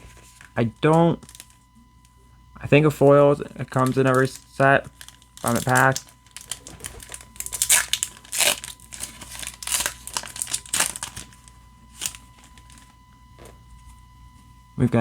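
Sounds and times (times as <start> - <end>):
plastic packaging crinkling and ripping: 0.0 - 1.8, 3.6 - 13.5
faint steady tone: 0.0 - 15.0.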